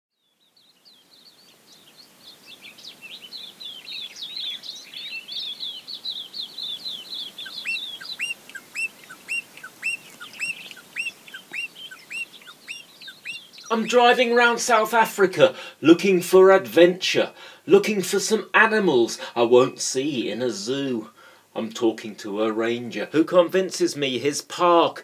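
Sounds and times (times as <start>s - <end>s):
birds twittering: 0.2s - 14.9s
short rising bird call: 2.9s - 13.8s.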